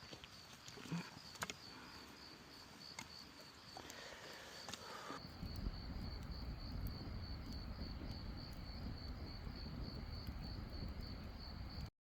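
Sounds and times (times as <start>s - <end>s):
insect chirping trill: 1.2s - 11.9s
low rumbling noise: 5.2s - 11.9s.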